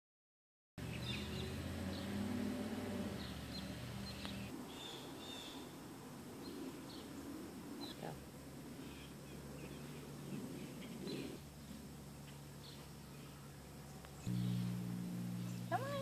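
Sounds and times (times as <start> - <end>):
birds chirping: 0.8 - 16.0
low mechanical hum: 9.2 - 16.0.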